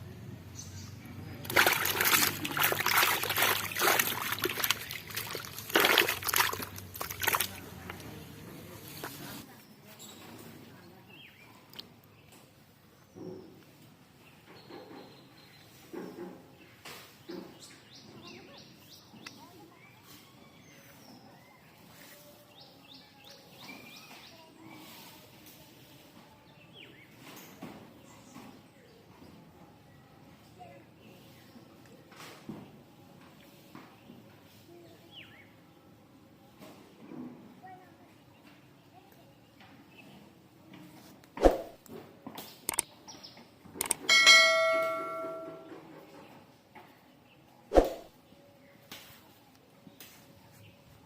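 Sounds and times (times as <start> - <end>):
birds chirping: 0.0 - 11.6, 42.7 - 45.7
water splashing and sloshing: 1.2 - 9.3.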